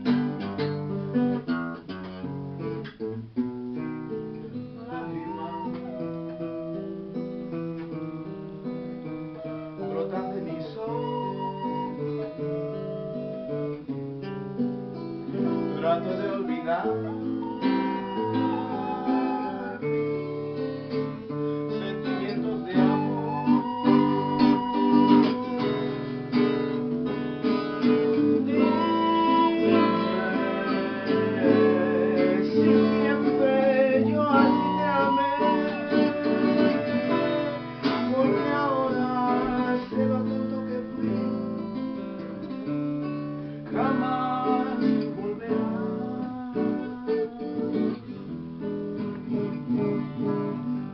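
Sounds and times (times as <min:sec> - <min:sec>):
acoustic guitar strumming: 0:00.0 - 0:50.9
wind pipe melody: 0:05.0 - 0:07.0, 0:09.2 - 0:14.1, 0:15.4 - 0:41.6.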